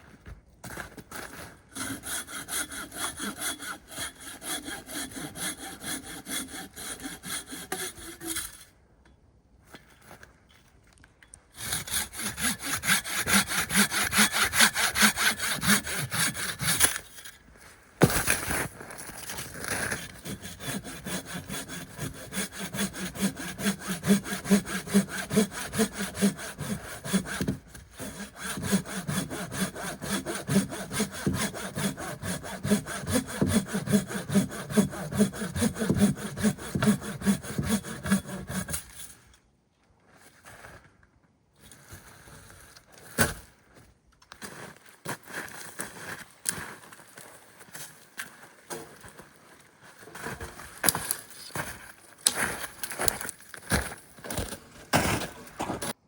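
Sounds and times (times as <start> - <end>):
hand saw cutting wood: 1.7 - 8.7, 11.6 - 17.4, 18.0 - 39.2, 50.0 - 56.0.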